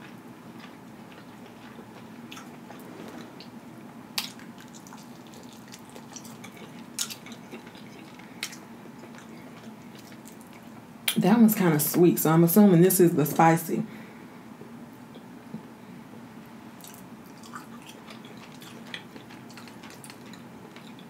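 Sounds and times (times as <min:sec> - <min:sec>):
chewing with wet mouth sounds: 0:00.0 - 0:03.5, 0:04.2 - 0:10.8, 0:16.8 - 0:21.0.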